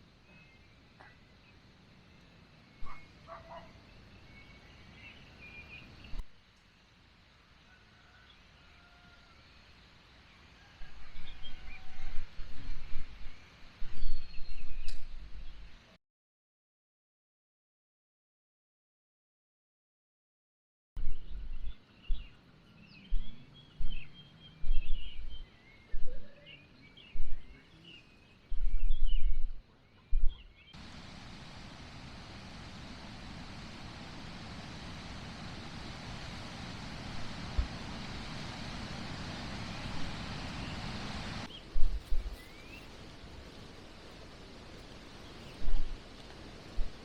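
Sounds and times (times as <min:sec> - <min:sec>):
birds chirping: 0:00.0 - 0:06.2, 0:21.0 - 0:41.7
steady hiss: 0:30.8 - 0:47.0.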